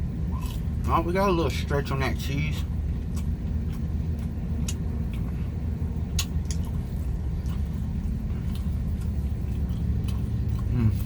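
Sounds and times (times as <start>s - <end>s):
car engine rumble inside cabin: 0.0s - 11.0s
person chewing: 0.3s - 0.8s, 2.6s - 11.0s.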